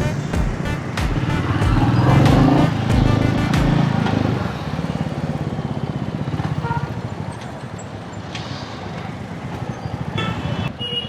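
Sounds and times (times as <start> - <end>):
motorcycle engine cruising: 0.0 - 7.8
road and wind noise: 0.0 - 11.0.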